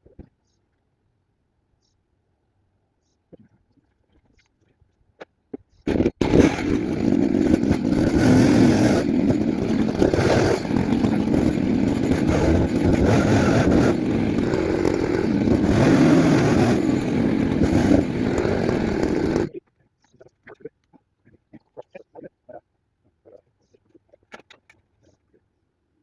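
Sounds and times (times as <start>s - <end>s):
chainsaw cutting into log: 5.9s - 19.5s.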